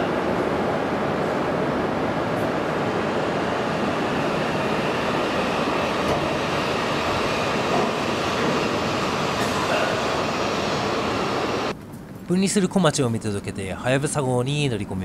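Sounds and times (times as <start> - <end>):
train pulling slowly away: 0.0 - 11.7.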